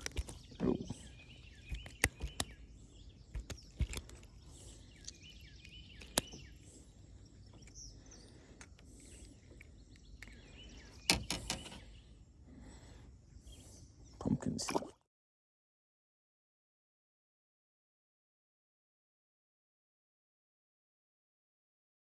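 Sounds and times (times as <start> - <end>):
sharp knocks and clicks: 0.0 - 0.6, 1.6 - 2.6, 3.3 - 4.3, 11.0 - 11.8
birds chirping: 0.0 - 14.7.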